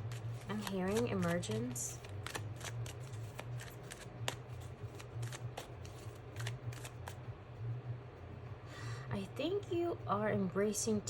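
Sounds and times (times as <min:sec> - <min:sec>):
cards being shuffled: 0:00.0 - 0:07.2
low steady hum: 0:00.0 - 0:11.0.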